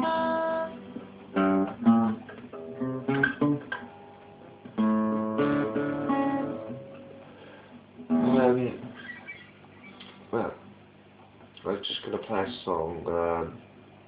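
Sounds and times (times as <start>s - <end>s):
acoustic guitar chords: 0.0s - 10.7s.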